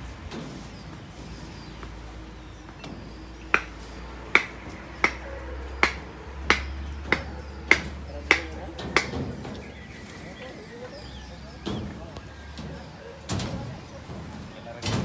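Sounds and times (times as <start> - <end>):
hammer blows ringing: 3.4 - 9.4.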